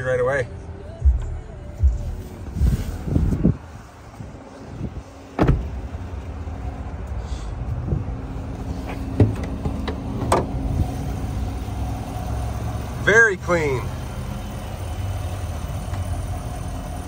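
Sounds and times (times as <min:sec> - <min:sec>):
pickup truck engine idling: 0:08.1 - 0:17.0.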